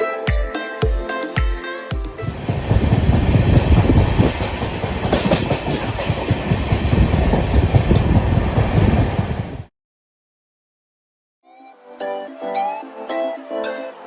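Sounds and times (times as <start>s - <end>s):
train wheels rumbling: 2.2s - 9.7s
faint rail clacks: 2.5s - 8.9s.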